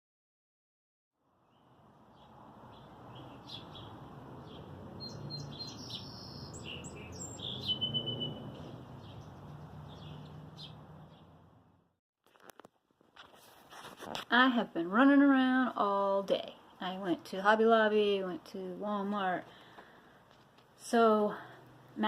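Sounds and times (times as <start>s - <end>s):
small birds chirping: 1.4s - 11.4s.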